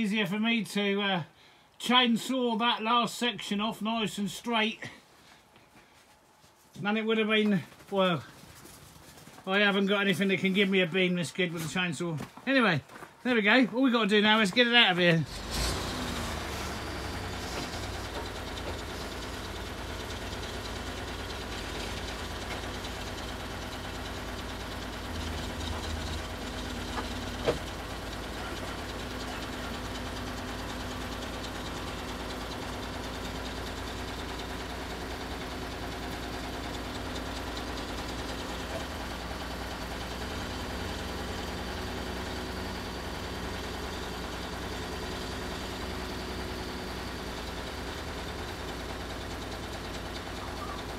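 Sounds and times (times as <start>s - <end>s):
engine idling: 14.1s - 50.9s.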